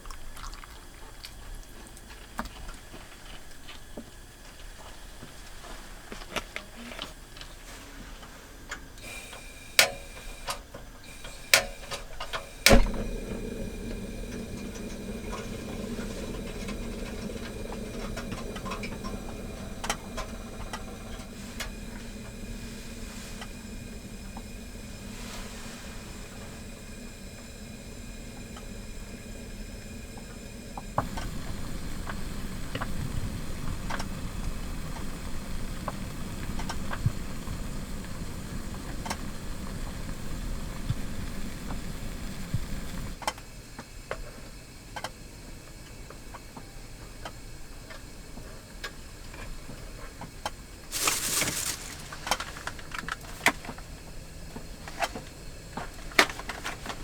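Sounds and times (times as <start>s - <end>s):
wind buffeting car: 12.7s - 25.1s, 27.4s - 43.2s
loud rustle: 50.9s - 53.4s.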